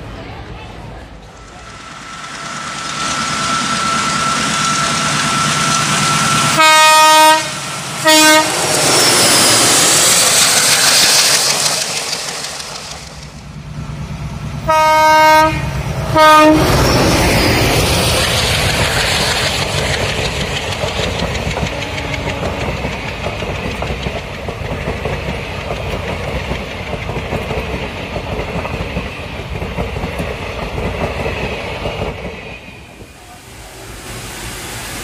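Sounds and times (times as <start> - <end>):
train wheels clattering over rail joints: 8.0 - 13.5, 17.8 - 32.4.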